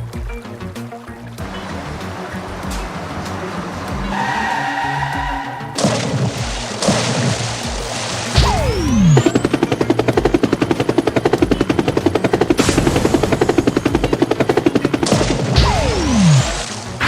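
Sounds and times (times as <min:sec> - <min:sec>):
background music: 0:00.0 - 0:17.0
falling whistle: 0:03.9 - 0:07.5.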